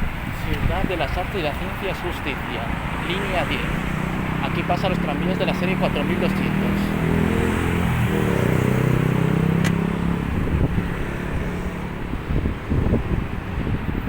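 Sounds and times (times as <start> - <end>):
wind on microphone: 0.0 - 5.0, 6.8 - 14.0
sharp click: 9.6 - 9.8.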